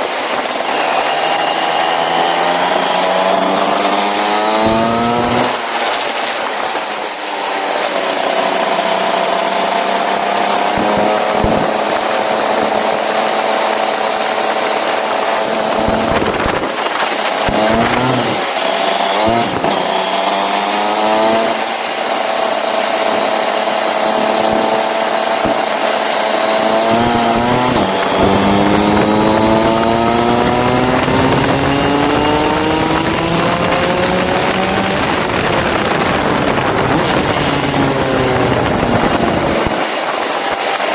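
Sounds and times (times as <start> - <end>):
go-kart engine revving: 0.0 - 40.9.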